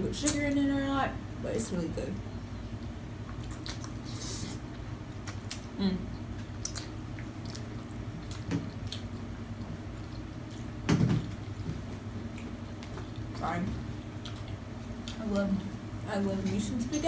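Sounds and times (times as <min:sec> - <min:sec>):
person chewing food: 0:03.2 - 0:15.2.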